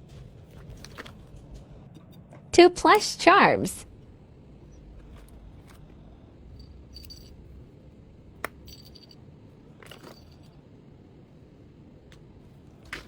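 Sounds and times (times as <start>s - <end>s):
metal items jingling: 4.7s - 7.8s, 8.4s - 10.6s.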